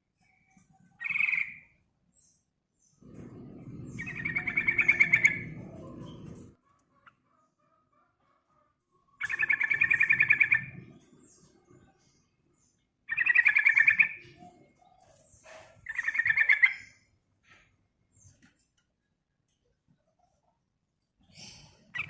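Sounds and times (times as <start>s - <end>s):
bird chattering: 1.0s - 1.8s, 4.0s - 7.7s, 9.2s - 10.9s, 13.1s - 14.4s, 15.8s - 17.0s.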